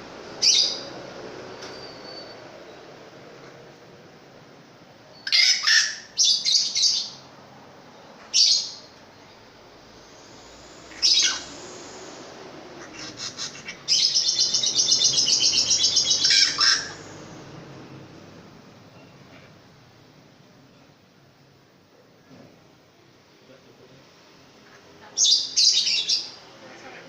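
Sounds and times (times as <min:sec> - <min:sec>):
shrike calling: 0:10.2 - 0:17.4.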